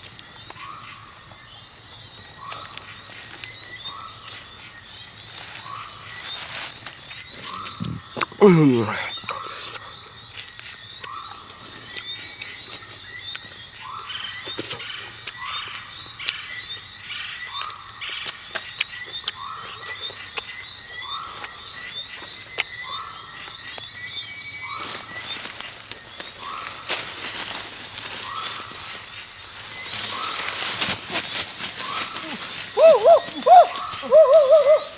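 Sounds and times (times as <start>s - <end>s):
high chirps: 23.9s - 34.9s
animal calling: 28.0s - 34.9s.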